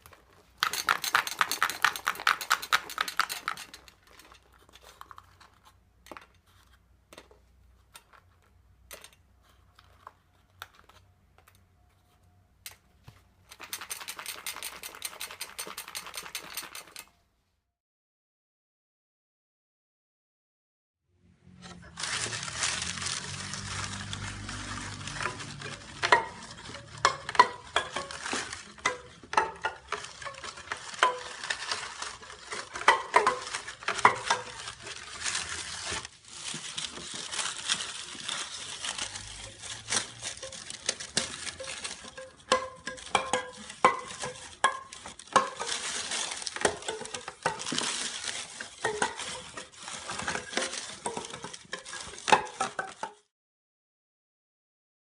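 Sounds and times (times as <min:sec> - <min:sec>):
utensils clinking against pots: 0:00.6 - 0:04.6, 0:13.5 - 0:17.1, 0:23.9 - 0:35.0, 0:39.2 - 0:53.2.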